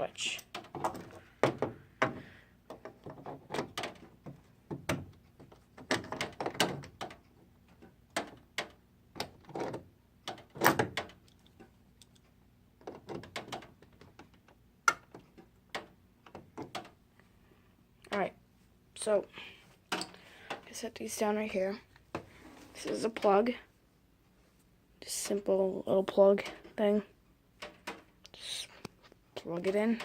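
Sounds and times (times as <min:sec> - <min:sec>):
faint steady hum: 0:00.0 - 0:30.0
housing being handled: 0:00.4 - 0:11.8.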